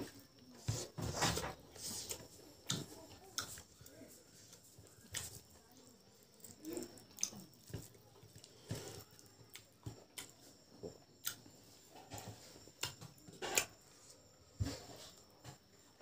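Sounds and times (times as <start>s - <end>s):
hand kneading rice squelches: 0.0s - 11.6s
chewing with lip smacks: 6.4s - 10.4s.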